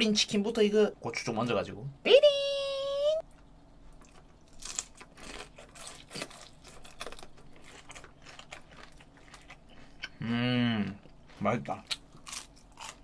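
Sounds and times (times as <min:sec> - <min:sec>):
crispy chicken crunching: 0:04.0 - 0:10.1, 0:11.0 - 0:13.0.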